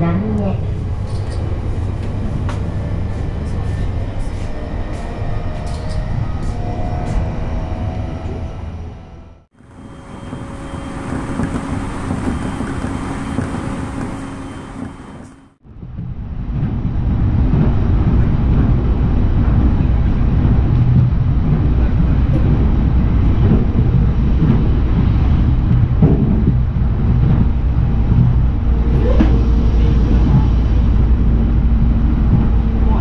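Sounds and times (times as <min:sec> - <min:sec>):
electric train running: 0:00.7 - 0:15.6
steady hum: 0:09.6 - 0:33.0.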